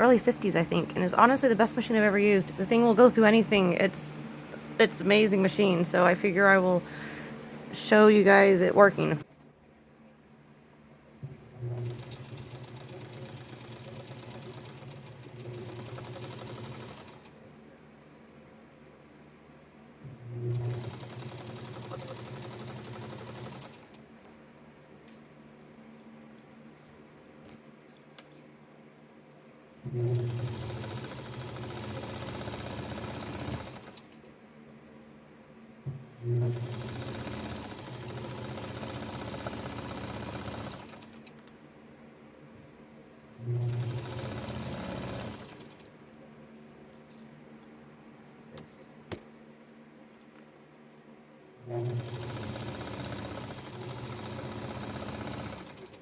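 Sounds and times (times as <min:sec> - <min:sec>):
sewing machine running: 0:11.6 - 0:17.4, 0:20.3 - 0:24.0, 0:29.9 - 0:34.2, 0:36.2 - 0:41.3, 0:43.4 - 0:45.9, 0:51.6 - 0:56.0.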